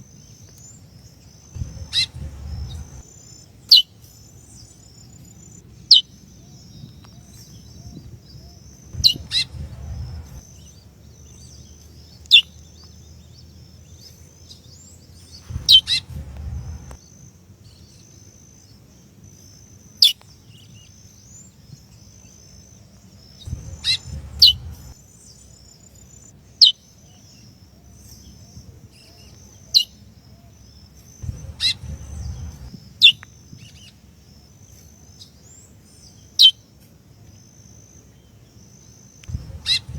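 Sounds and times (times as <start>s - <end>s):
brief low rumbling: 1.6s - 3.0s, 8.9s - 10.4s, 15.4s - 17.0s, 23.5s - 25.0s, 31.2s - 32.8s, 39.3s - 39.9s
faint high twittering: 1.6s - 3.4s, 8.7s - 10.7s, 15.4s - 17.0s, 23.5s - 25.0s, 31.2s - 32.7s, 39.2s - 39.9s.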